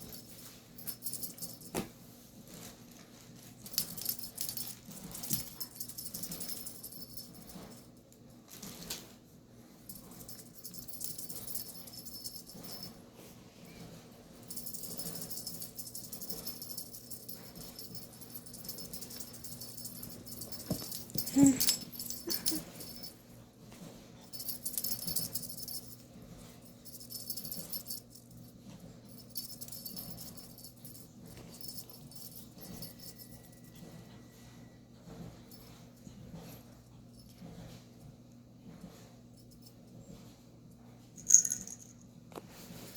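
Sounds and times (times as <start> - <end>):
cat toy jingling: 0.0 - 1.8, 3.4 - 8.9, 9.8 - 13.0, 14.4 - 23.3, 24.2 - 34.0, 41.2 - 42.0.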